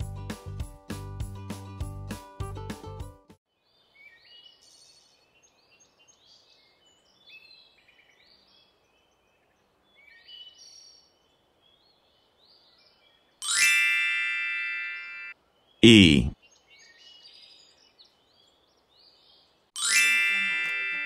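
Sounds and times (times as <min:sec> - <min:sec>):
small birds chirping: 0:03.5 - 0:13.4, 0:15.0 - 0:19.7
bright chime sound effect: 0:13.4 - 0:15.3, 0:19.8 - 0:21.0.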